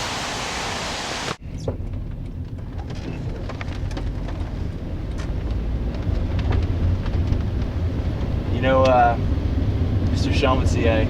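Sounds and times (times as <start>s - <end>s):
rain falling: 0.0s - 1.4s
steady hiss: 0.0s - 1.4s.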